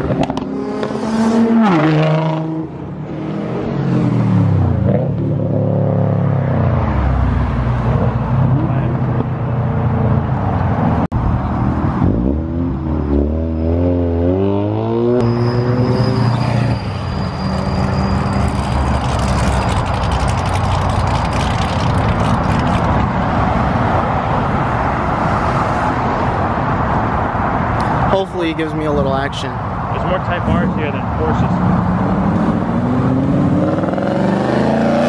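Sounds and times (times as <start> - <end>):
steady car rumble: 0.0 - 35.0
car engine revving: 17.4 - 23.6.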